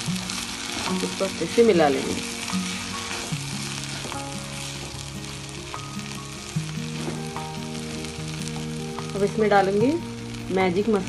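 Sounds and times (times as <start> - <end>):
food sizzling in frying pan: 0.0 - 11.0
spatula stirring food: 2.3 - 5.5.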